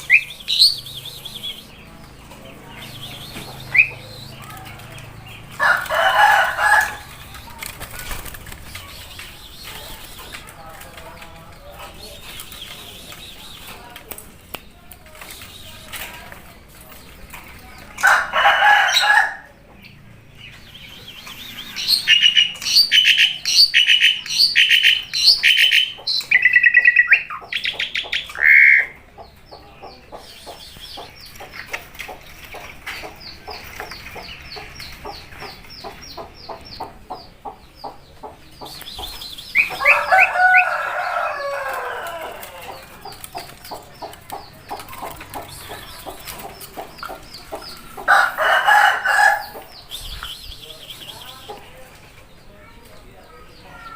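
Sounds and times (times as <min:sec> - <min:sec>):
starling calling: 0:00.0 - 0:10.8, 0:20.4 - 0:51.8.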